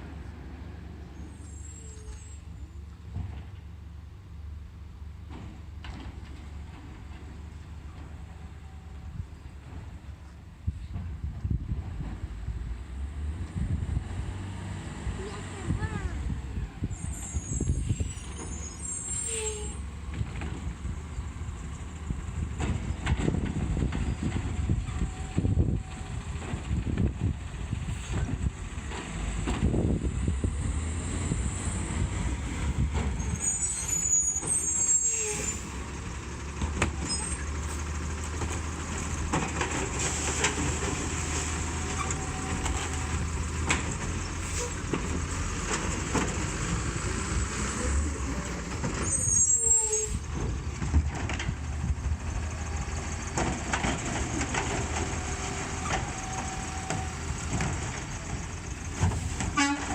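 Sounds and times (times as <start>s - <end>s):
garbage truck engine running: 19.8s - 59.9s.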